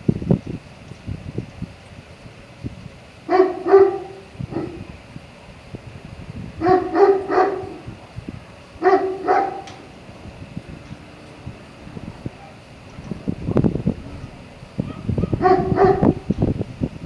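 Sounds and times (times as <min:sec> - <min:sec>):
wind on microphone: 0:00.0 - 0:17.0
dog barking: 0:03.3 - 0:05.0, 0:06.6 - 0:16.5.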